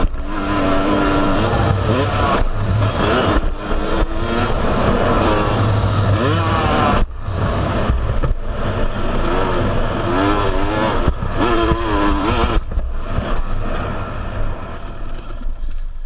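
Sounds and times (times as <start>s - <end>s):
two-stroke motocross engine revving: 0.0s - 14.2s.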